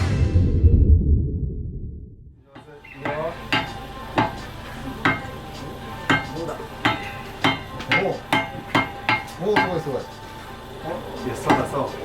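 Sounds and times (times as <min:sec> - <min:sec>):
metal-on-metal ringing strikes: 0:02.5 - 0:05.3.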